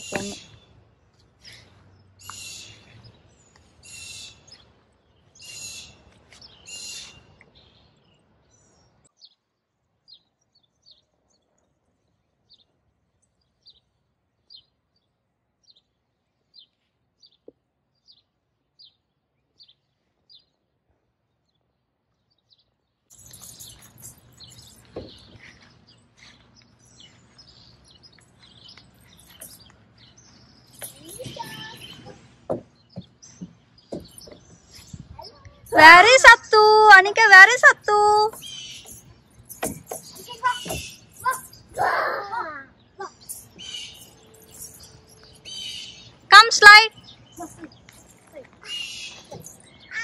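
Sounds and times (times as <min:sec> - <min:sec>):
outdoor background noise: 0:00.0 - 0:50.0
songbirds calling: 0:00.0 - 0:50.0.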